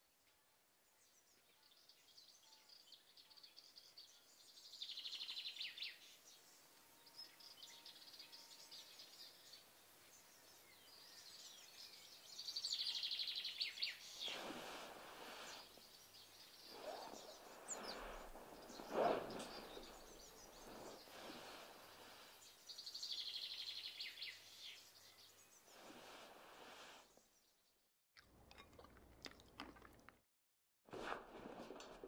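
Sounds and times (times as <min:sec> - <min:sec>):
soft rush of noise: 0:14.2 - 0:22.6, 0:25.7 - 0:27.0
bird chirping and trilling: 0:15.2 - 0:25.6.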